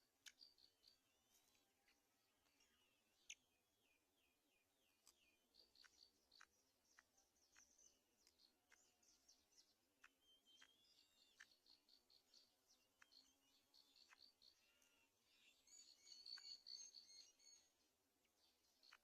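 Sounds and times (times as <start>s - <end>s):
faint high bird chirps: 0.0s - 19.0s
sharp clicks: 4.9s - 15.0s.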